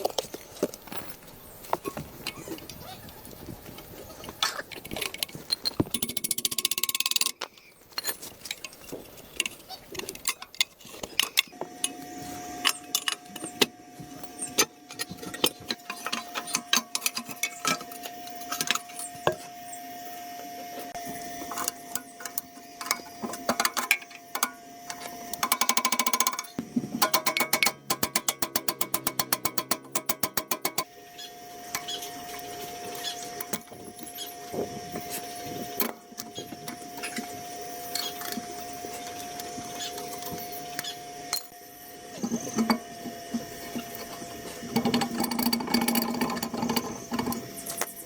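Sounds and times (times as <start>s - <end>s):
metal tool clicks and taps: 22.2s - 30.9s.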